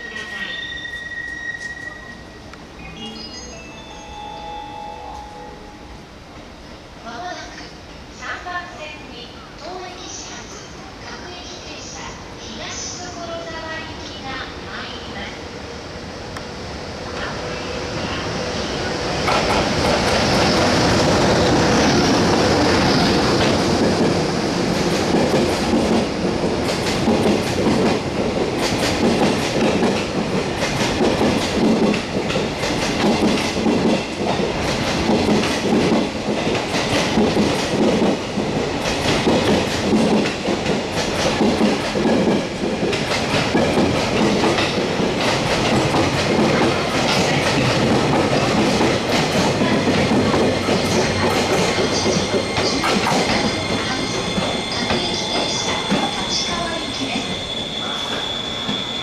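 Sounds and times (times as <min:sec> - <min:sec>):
train wheels clattering over rails: 0:19.2 - 0:56.4.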